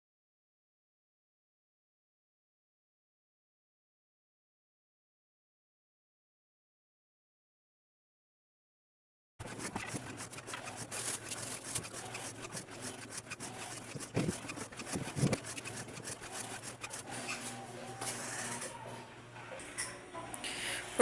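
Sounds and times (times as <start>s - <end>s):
rubbing and wiping: 9.4s - 18.8s.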